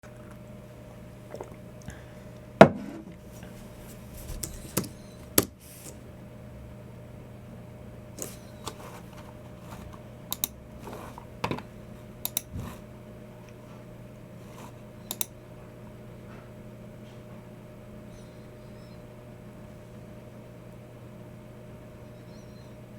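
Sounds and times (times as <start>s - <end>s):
faint steady hum: 0.0s - 22.9s
mouse clicks: 15.1s - 15.3s.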